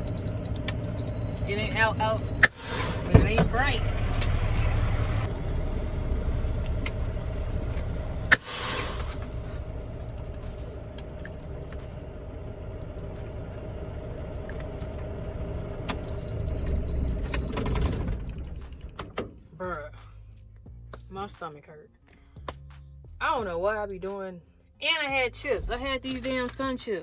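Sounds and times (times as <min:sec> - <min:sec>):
truck engine rumbling: 0:00.0 - 0:21.3.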